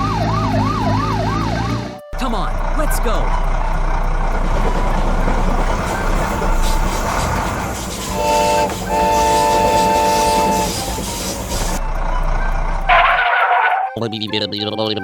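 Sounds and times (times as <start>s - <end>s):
vehicle running: 0.0s - 14.7s
multi-tone horn blowing: 3.3s - 11.8s, 12.9s - 13.9s.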